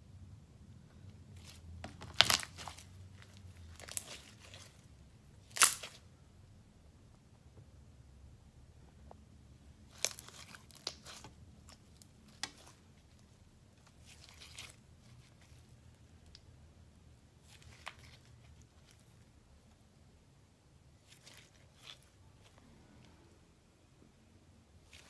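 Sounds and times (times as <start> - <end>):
slime crackling and popping: 1.4 - 4.8, 5.4 - 6.0, 9.9 - 12.8.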